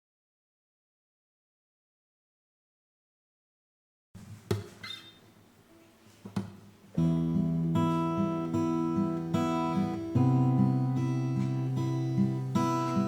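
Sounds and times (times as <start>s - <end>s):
acoustic guitar strummed chords: 6.9s - 13.0s.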